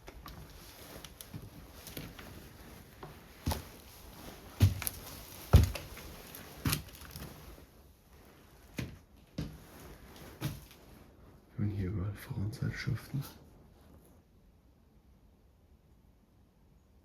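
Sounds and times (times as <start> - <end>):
thumps and knocks of handling: 2.9 - 7.4.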